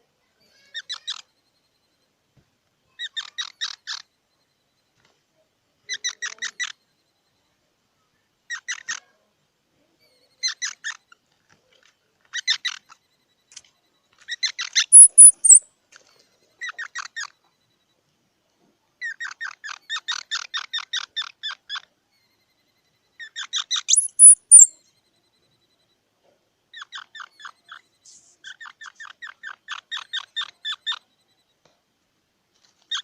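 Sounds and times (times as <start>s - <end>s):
squirrel chirping: 14.3s - 15.7s, 23.2s - 24.8s, 26.7s - 31.1s.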